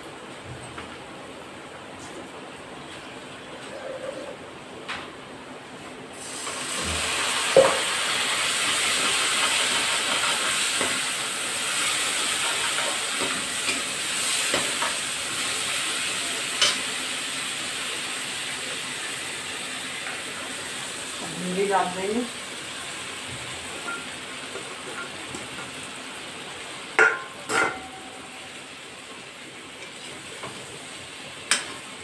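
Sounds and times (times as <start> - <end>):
masala sizzling in hot oil: 6.1 - 32.0
metal spatula knocking pan: 27.0 - 28.0.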